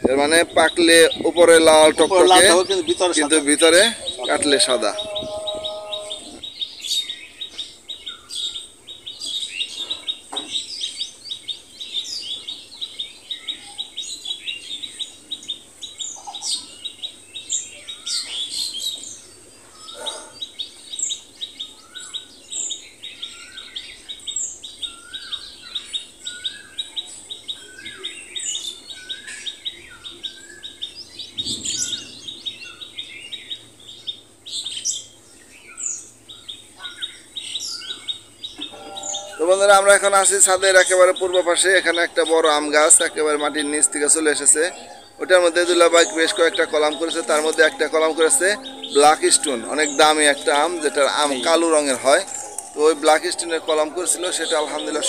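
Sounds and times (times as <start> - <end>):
small birds chirping: 0.0 - 55.0
fast even bird trill: 38.7 - 55.0.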